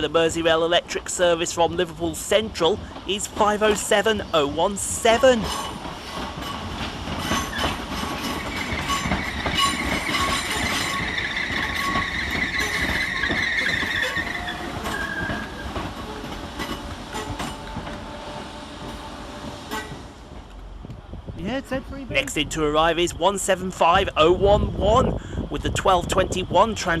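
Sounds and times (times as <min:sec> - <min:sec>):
train wheels clicking over rail joints: 0:01.7 - 0:21.0
high-pitched brake squeal: 0:08.6 - 0:15.6.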